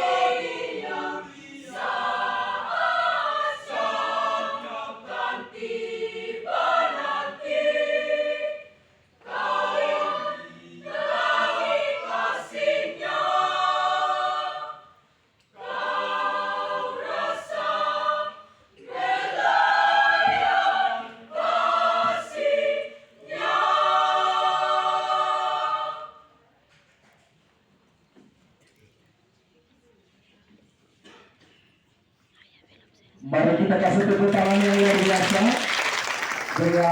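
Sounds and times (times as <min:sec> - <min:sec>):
choir singing: 0:00.0 - 0:26.4.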